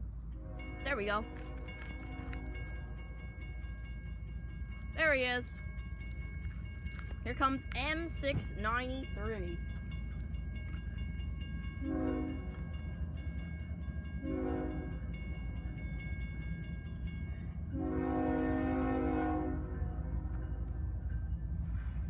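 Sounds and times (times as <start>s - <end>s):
low rumble of train: 0.0s - 22.0s
locomotive air horn blasts: 0.4s - 2.6s, 11.8s - 12.5s, 14.2s - 15.0s, 17.8s - 19.8s.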